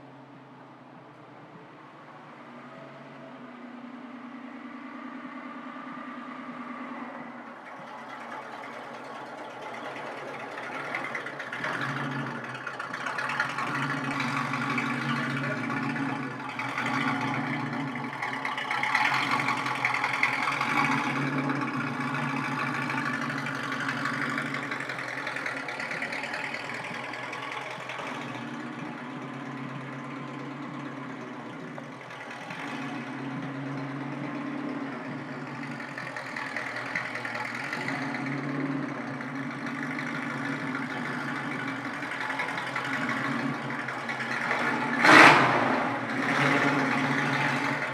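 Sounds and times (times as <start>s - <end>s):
car engine revving while driving: 10.7s - 47.9s.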